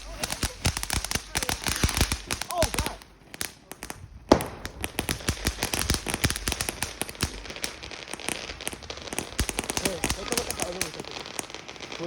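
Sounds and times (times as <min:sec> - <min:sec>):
firework crackling pops: 0:00.0 - 0:12.0
firework bang: 0:04.3 - 0:12.0.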